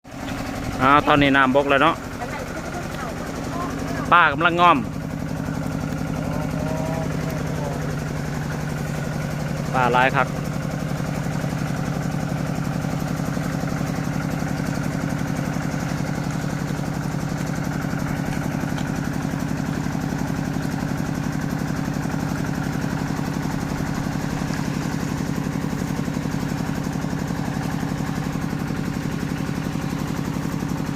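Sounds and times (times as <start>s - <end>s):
small engine running steadily: 0.0s - 30.9s.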